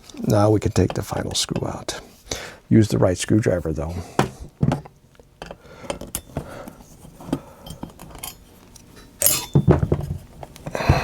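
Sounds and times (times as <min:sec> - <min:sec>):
tool clattering: 0:09.2 - 0:10.2.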